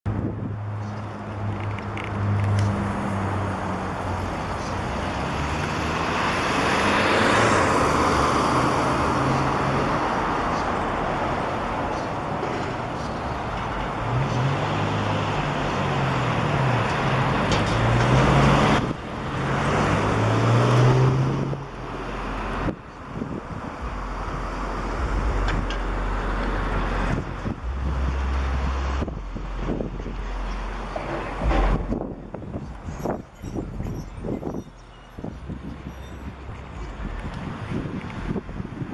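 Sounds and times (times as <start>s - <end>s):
vehicles passing: 0.1s - 38.9s
engine hum rising and falling: 13.2s - 34.6s.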